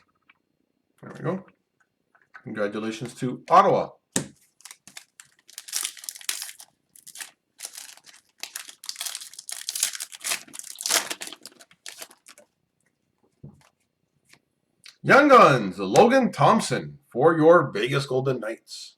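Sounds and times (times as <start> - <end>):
foil wrapper crinkling and tearing: 4.4 - 12.5.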